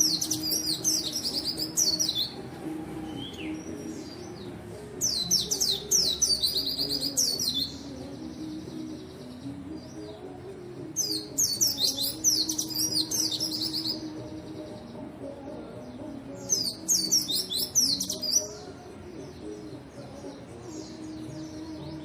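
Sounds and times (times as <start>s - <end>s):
bird twittering: 5.0s - 8.0s, 16.5s - 18.6s.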